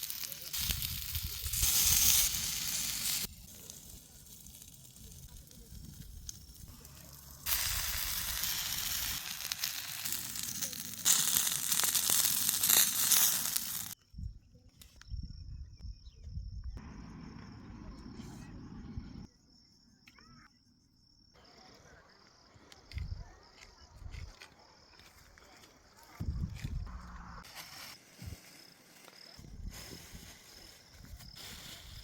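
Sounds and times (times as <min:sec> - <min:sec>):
sizzling hiss with crackles: 0:00.0 - 0:14.0, 0:26.4 - 0:32.0
low rumbling: 0:26.2 - 0:27.4.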